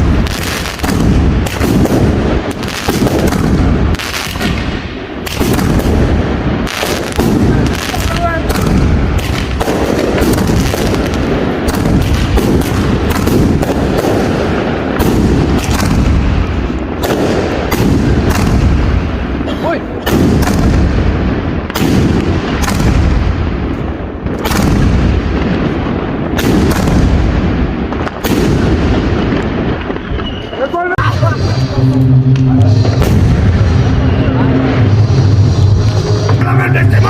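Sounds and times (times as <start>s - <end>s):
firecrackers exploding: 0.0s - 37.0s
rumble of explosions: 0.0s - 37.0s.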